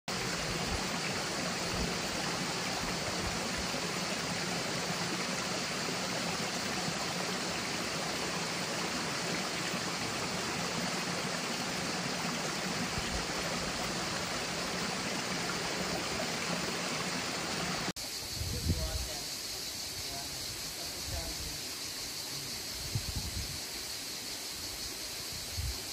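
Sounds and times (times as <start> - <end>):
stream water flowing: 0.1 - 18.2.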